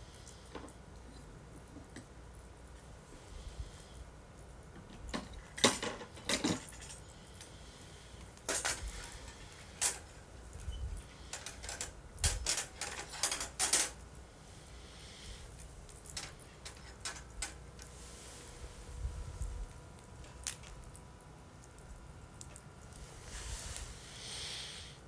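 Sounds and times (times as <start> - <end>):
bonfire crackling and popping: 19.3 - 24.0.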